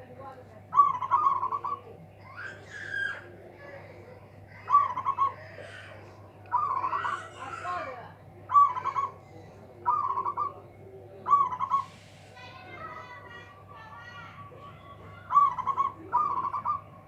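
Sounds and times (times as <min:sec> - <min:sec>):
dove cooing: 0:00.7 - 0:03.3, 0:04.5 - 0:07.8, 0:08.5 - 0:09.2, 0:09.8 - 0:12.0, 0:15.1 - 0:17.0.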